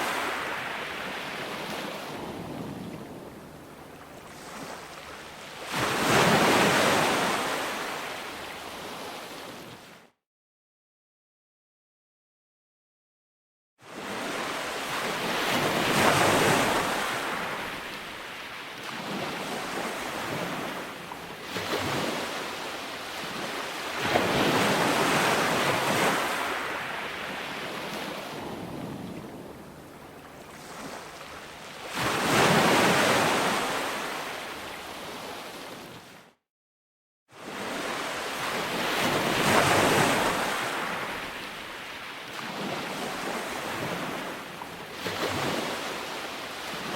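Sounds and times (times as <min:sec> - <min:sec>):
ocean surf breaking on sand: 0:00.0 - 0:03.2, 0:14.0 - 0:35.4, 0:37.4 - 0:46.9.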